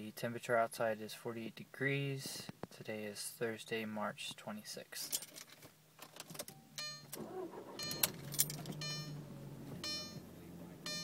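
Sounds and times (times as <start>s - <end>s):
car engine cranking and starting: 6.0s - 11.0s
dashboard warning chime: 6.5s - 11.0s
car engine fast idle: 7.2s - 10.9s.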